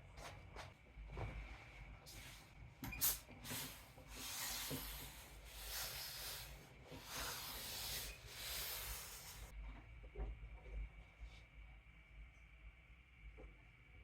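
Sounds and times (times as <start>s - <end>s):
iron rubbing over cloth: 2.1s - 9.5s.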